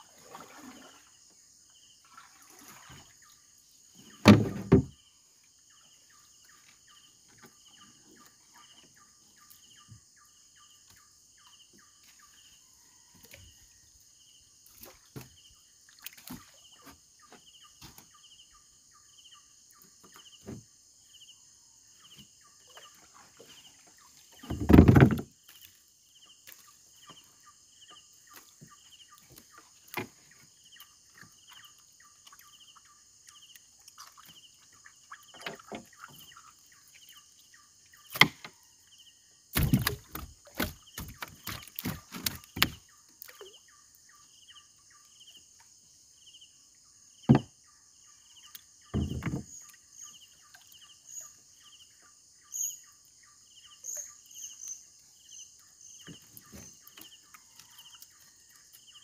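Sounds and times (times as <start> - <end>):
insects chirping: 0.0 - 59.0
knocks and rustles: 4.2 - 5.0, 24.4 - 25.4, 39.6 - 42.8, 48.9 - 49.6.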